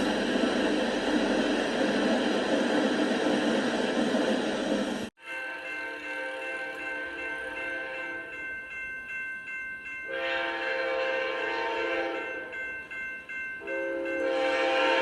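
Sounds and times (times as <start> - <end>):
locomotive air horn chord: 5.4 - 8.4, 10.1 - 12.4, 13.7 - 15.0.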